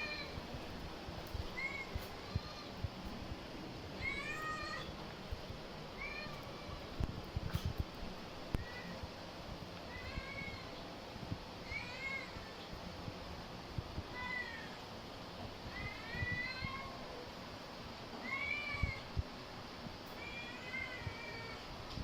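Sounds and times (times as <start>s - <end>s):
cat meowing: 4.0s - 4.9s.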